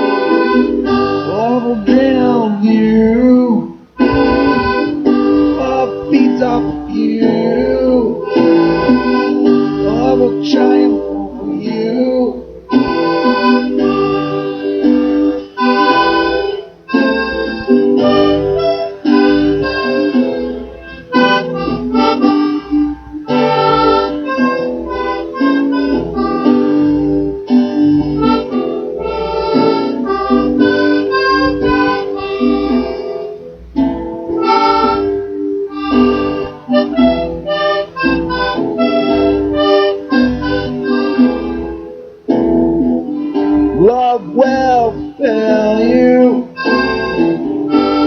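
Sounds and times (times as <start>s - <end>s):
live band instrumental music: 0.0s - 48.0s.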